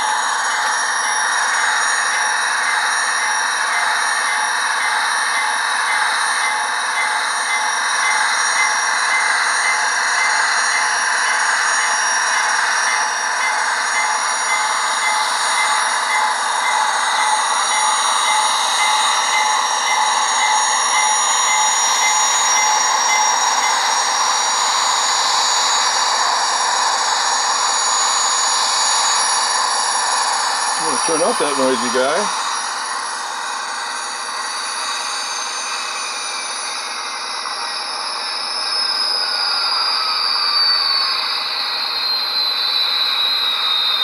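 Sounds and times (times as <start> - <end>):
turbine rush through small speaker: 21.7 - 44.0.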